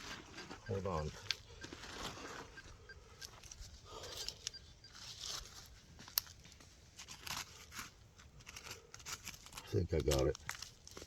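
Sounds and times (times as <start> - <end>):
digging in wet soil: 3.4 - 11.0.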